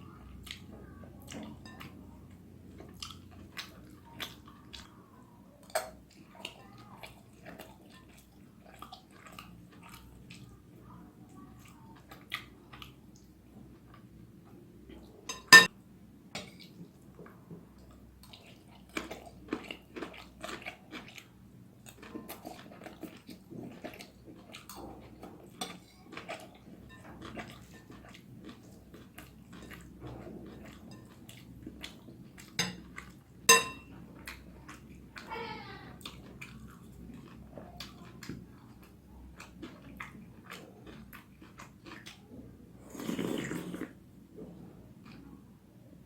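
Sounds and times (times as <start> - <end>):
chewing noodles: 0.4 - 14.0, 17.8 - 35.4, 36.0 - 45.4
cutlery tapping on a plate: 15.3 - 15.7, 32.6 - 32.8, 33.5 - 33.9.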